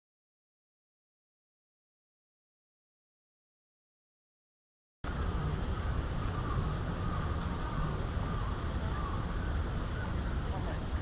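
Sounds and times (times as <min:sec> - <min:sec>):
steady low rumble: 0:05.0 - 0:11.0
high thin bird calls: 0:05.7 - 0:10.7.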